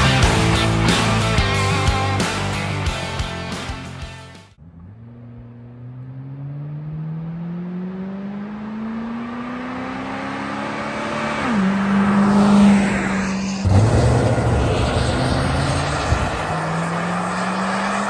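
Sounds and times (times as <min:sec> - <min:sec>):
car engine accelerating past: 0:04.6 - 0:18.0.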